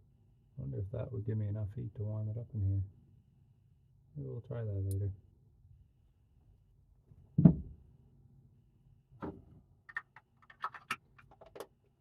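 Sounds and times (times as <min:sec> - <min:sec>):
heavy thump of object set down: 0:07.4 - 0:07.8
small clicks and rattles: 0:09.9 - 0:11.8.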